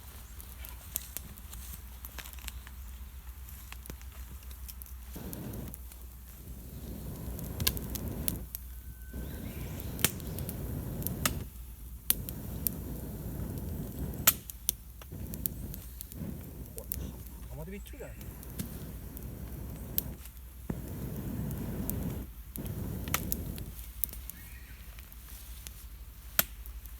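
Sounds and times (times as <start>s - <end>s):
campfire crackling and popping: 0.4s - 2.7s, 3.3s - 26.9s
blowing air through a pipe: 5.2s - 14.4s, 15.1s - 17.6s, 18.2s - 23.8s.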